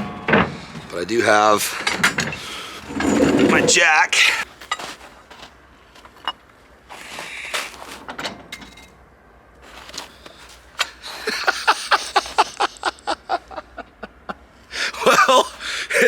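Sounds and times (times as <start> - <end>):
metal clanks and knocks: 0.0 - 3.8.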